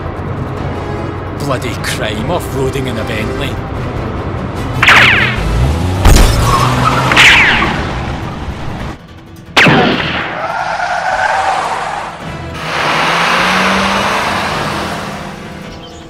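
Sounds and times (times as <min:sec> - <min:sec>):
gunshot: 0:04.8 - 0:05.4, 0:09.6 - 0:10.4.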